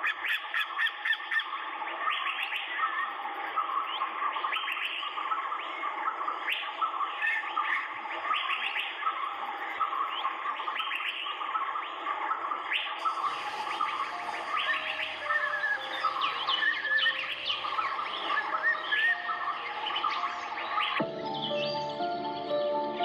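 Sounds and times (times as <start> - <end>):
chorus of birds calling: 0.0 - 23.0.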